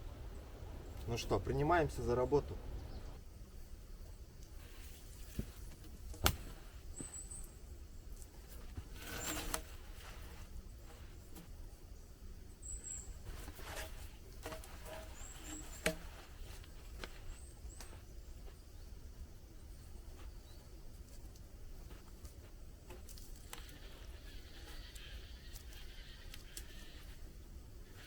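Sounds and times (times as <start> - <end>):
rustling scrape: 8.4 - 11.5, 13.2 - 17.5.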